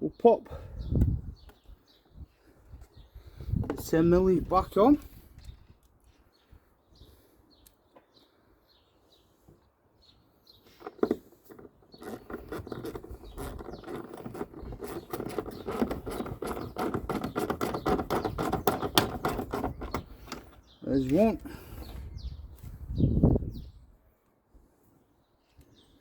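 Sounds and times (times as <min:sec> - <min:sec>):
faint birdsong: 0:00.0 - 0:26.0.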